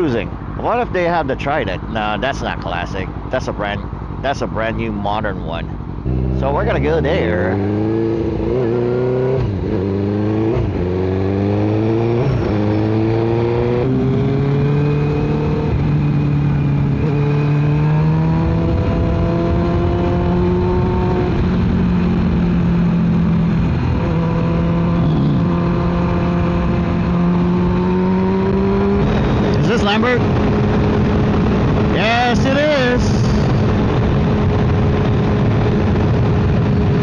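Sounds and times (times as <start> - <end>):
motorcycle engine accelerating: 0.0 - 37.0.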